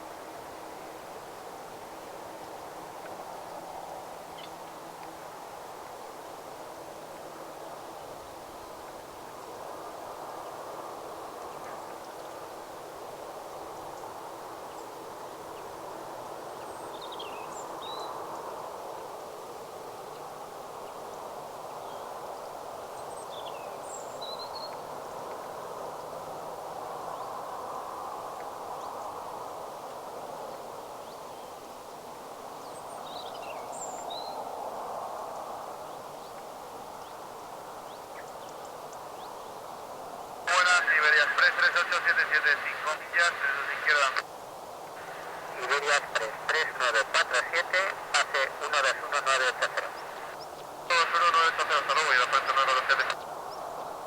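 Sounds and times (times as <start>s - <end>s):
steady outdoor noise: 24.8s - 54.0s.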